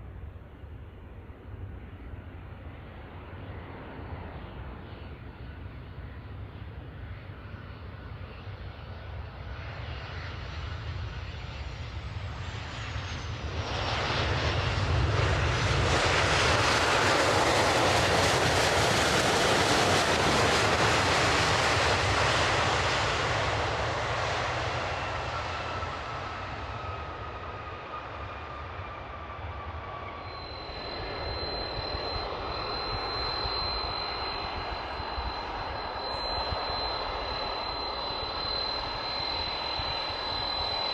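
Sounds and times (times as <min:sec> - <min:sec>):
jet plane passing: 0:12.4 - 0:40.9
thin high whistle: 0:17.4 - 0:40.9.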